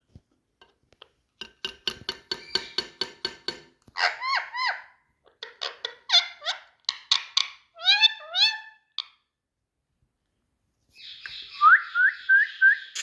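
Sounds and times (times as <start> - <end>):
parrot chattering and squawking: 4.0 - 9.2.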